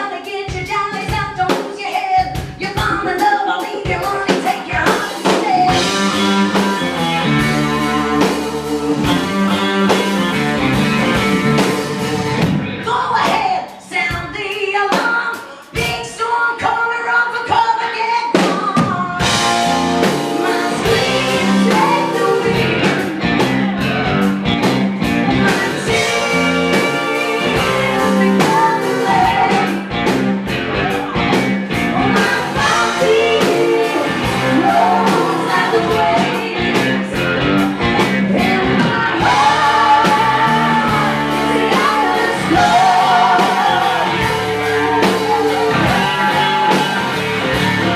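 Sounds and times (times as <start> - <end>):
woman singing: 0.0 - 6.1, 12.8 - 23.7, 25.2 - 29.9, 31.9 - 37.2, 38.3 - 47.0
drum kit: 0.0 - 16.2, 18.2 - 47.9
guitar playing: 5.7 - 12.9, 19.2 - 47.9.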